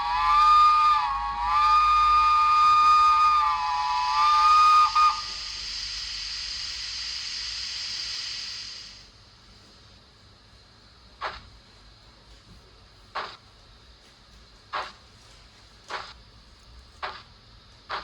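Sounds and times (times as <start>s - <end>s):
steam whistle from small speaker: 0.0s - 9.0s
steam hiss: 0.0s - 9.2s, 15.9s - 16.2s.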